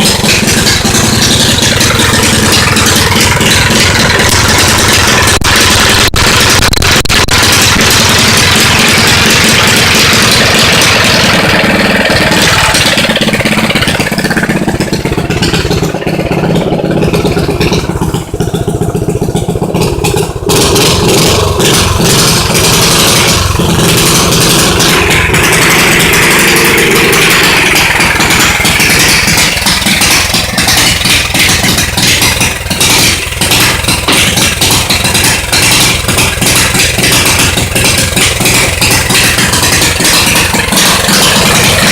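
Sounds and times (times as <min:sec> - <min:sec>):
small engine revving loudly: 0:07.4 - 0:14.0, 0:20.5 - 0:37.6, 0:38.2 - 0:41.9.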